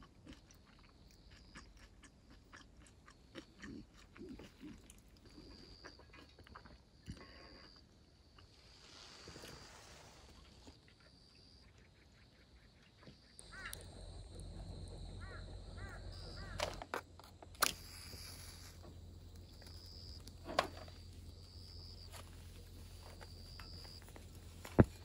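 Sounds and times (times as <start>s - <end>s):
bird calling: 13.4s - 25.0s.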